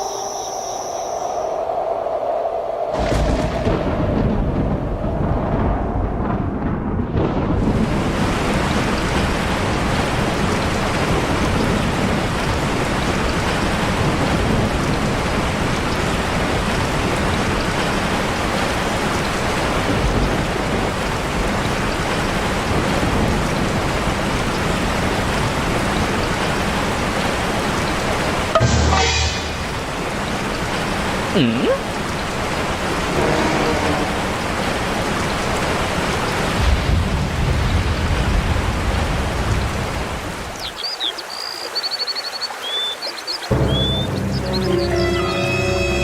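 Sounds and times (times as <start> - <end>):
heavy rain hiss: 7.2 - 46.0.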